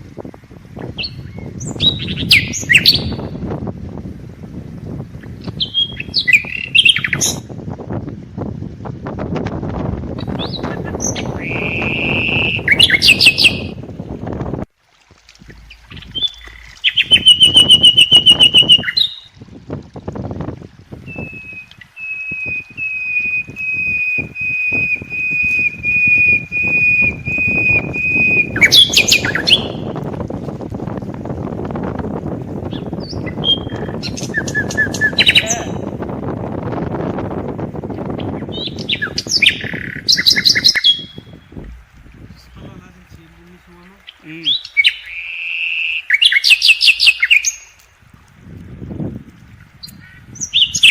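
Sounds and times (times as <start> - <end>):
songbird singing: 0.7 - 3.5, 5.2 - 7.5, 10.2 - 13.9, 15.4 - 19.4, 20.9 - 30.0, 32.6 - 36.0, 38.0 - 47.9, 49.7 - 50.9
songbirds chirping: 15.4 - 19.3, 38.1 - 47.9
steady rushing noise: 41.3 - 44.0.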